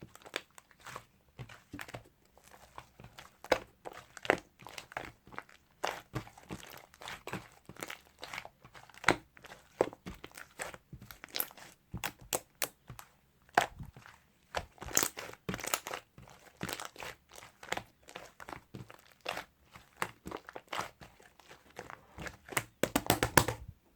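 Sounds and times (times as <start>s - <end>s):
slime squished by hand: 0.2s - 23.7s.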